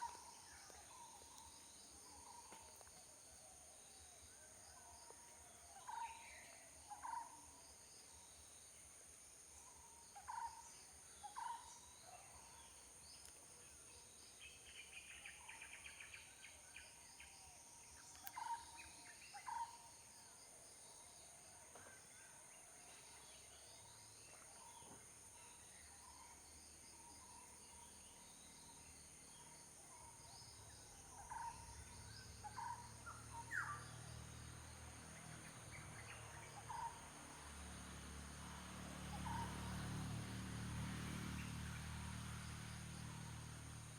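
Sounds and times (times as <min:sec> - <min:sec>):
bird chirps: 0:30.2 - 0:34.4.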